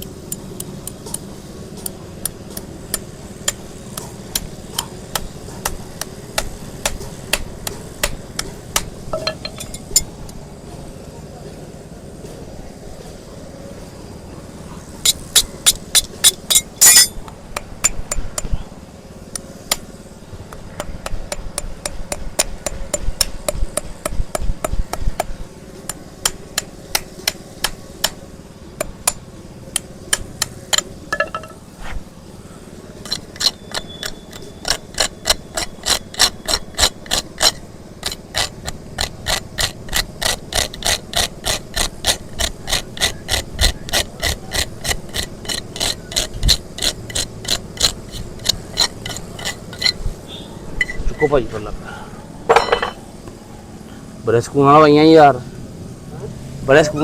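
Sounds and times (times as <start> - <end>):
hammer tapping on metal tool: 1.8 - 10.1, 28.8 - 31.6, 52.5 - 53.0.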